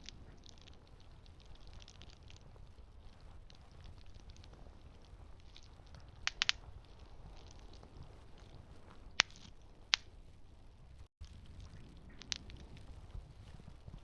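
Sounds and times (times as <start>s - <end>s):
sharp pops of fire: 0.0s - 10.2s
campfire crackling: 0.0s - 14.0s.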